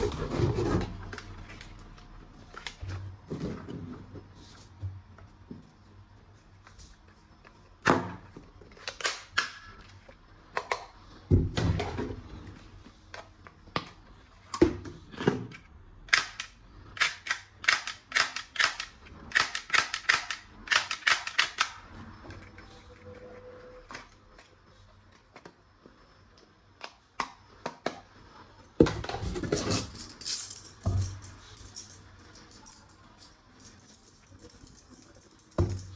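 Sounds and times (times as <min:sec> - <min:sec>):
toy gun plastic clicks: 0:16.1 - 0:21.8.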